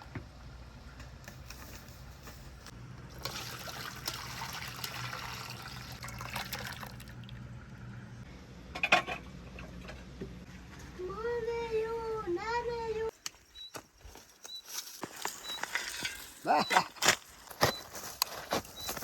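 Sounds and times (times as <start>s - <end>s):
water running and splashing: 3.1s - 7.4s.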